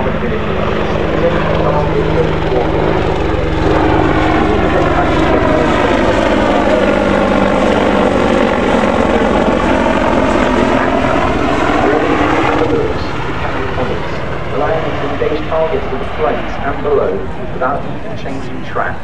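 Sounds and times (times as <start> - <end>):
helicopter rotor and turbine: 0.0 - 19.0.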